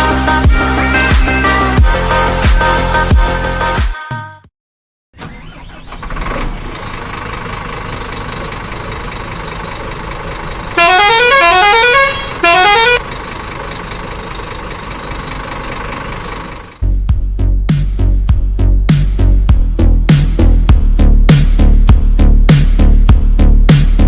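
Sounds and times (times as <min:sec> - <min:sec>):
lorry engine running: 0:05.2 - 0:17.2
multi-tone musical horn: 0:10.8 - 0:13.0.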